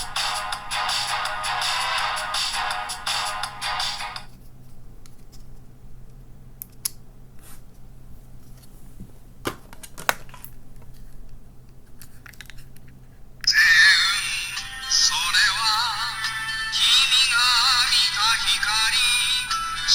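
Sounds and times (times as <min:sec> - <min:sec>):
electronic toy tune: 0:13.6 - 0:19.9.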